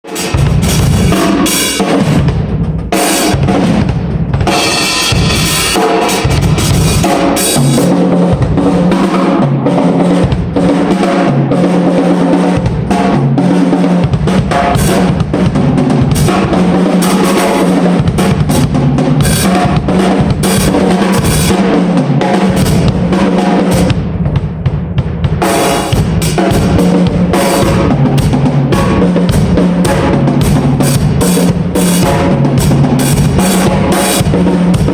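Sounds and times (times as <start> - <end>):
drum kit played hard: 0.0 - 34.9.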